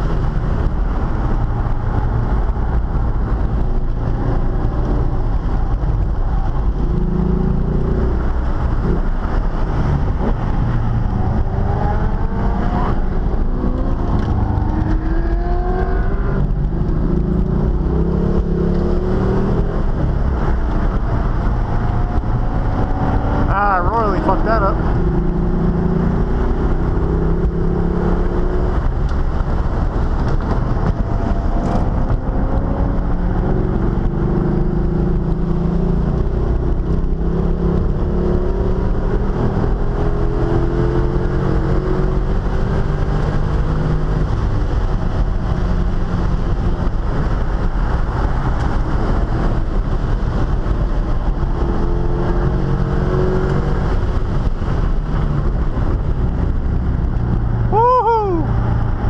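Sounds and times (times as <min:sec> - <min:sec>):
car engine revving: 0:00.0 - 0:59.0
road and wind noise: 0:00.0 - 0:59.0.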